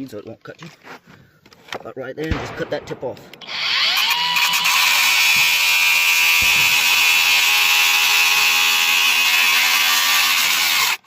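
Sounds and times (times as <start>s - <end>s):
electric grinder grinding metal: 3.4s - 11.0s.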